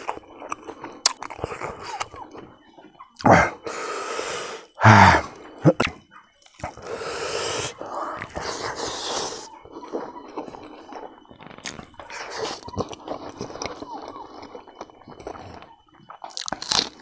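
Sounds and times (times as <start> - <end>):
wet chewing and lip smacks: 0.0 - 2.4, 5.7 - 6.9, 8.1 - 17.0
loud breathy bursts: 3.3 - 5.4, 6.8 - 9.5.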